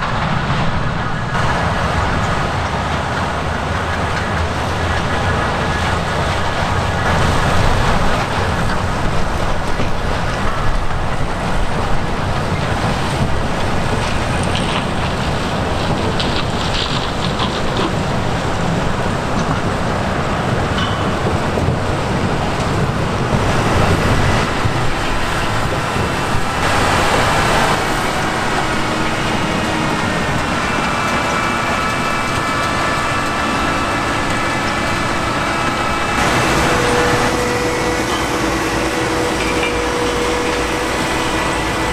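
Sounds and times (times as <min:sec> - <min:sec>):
diesel farm machinery running: 0:00.0 - 0:41.9
high whining tones: 0:23.4 - 0:41.9.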